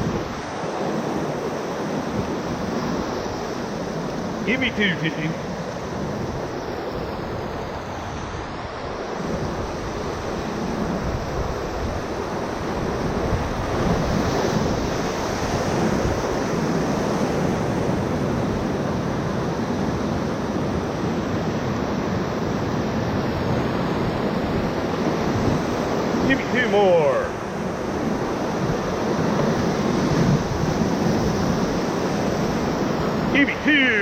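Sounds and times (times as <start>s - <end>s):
water rushing through rapids: 0.2s - 6.6s, 24.8s - 34.0s.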